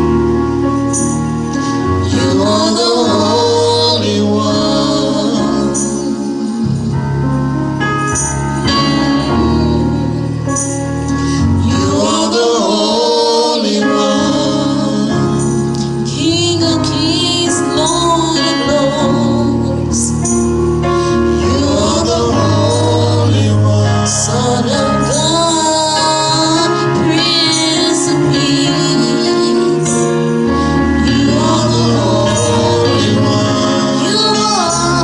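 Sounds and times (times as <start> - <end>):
gospel choir singing: 0.0 - 35.0
instrumental accompaniment: 0.0 - 35.0.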